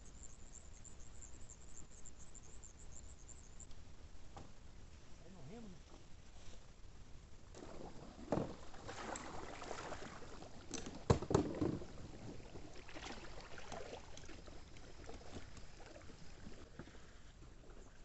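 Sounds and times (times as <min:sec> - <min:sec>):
paddle splashing in water: 0:07.5 - 0:18.0
paddle knocking against hull: 0:07.6 - 0:10.0, 0:10.6 - 0:14.4.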